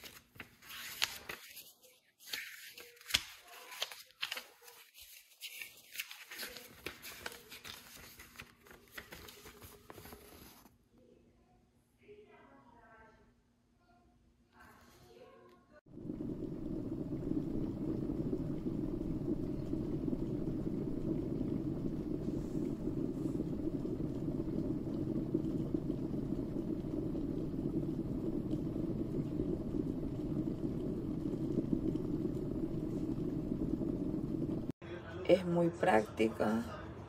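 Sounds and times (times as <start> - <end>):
electric kettle heating water: 15.8 - 34.8.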